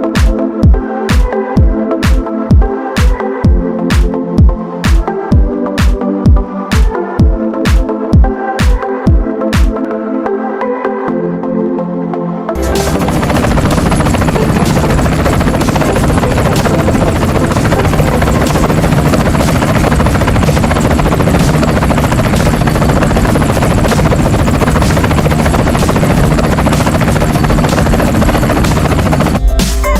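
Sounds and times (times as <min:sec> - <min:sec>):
helicopter rotor chopping: 0:12.6 - 0:29.7.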